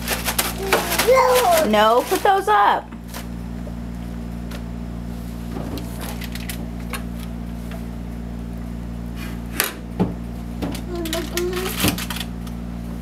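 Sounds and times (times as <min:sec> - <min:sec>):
items clicking and knocking: 0:00.0 - 0:02.4, 0:10.6 - 0:12.3
refrigerator humming: 0:00.0 - 0:13.0.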